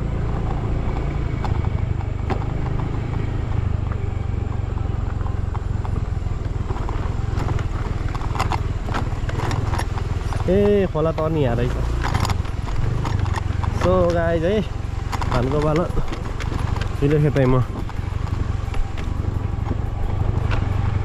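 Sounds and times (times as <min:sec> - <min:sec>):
motor scooter engine running: 0:00.0 - 0:21.0.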